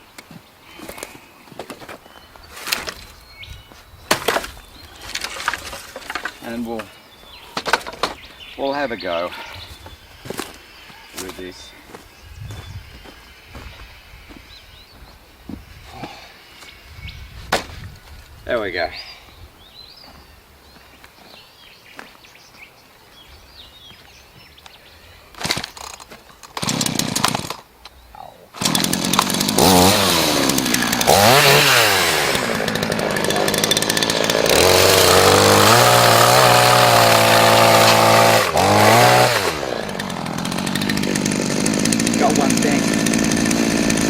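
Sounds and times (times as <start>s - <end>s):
chainsaw revving: 25.4s - 27.6s, 28.6s - 44.0s.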